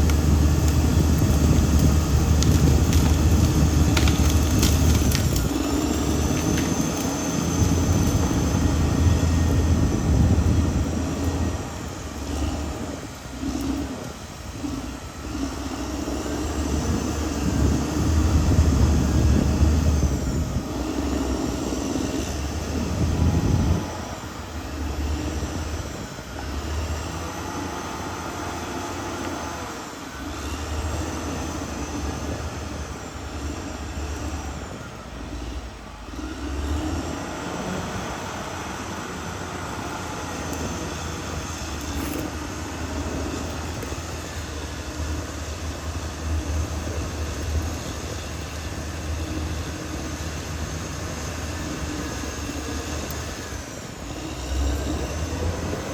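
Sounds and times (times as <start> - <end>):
bulldozer diesel engine working: 0.0 - 55.9.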